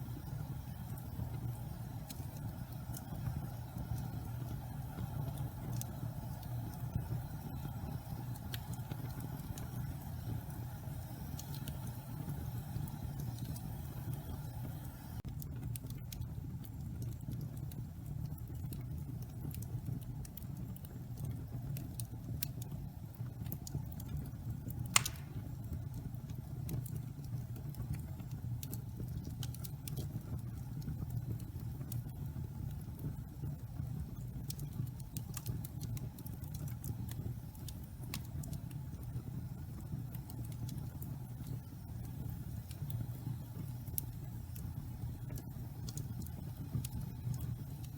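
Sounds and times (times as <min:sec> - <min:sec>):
wood fire crackling: 0:00.0 - 0:47.9
sharp pop from fire: 0:24.9 - 0:25.7.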